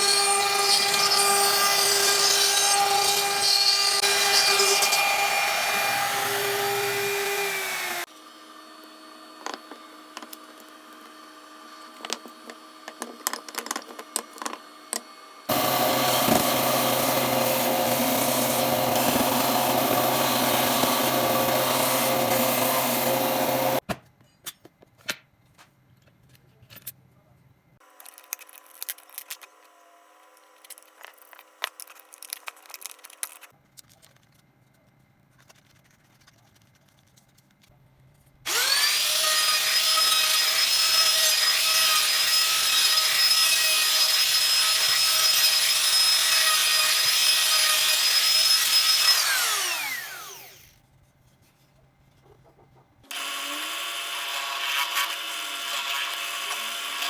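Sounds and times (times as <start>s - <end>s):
power tool cutting wood: 0.0s - 13.0s, 14.6s - 23.8s, 38.5s - 50.8s, 53.1s - 57.0s.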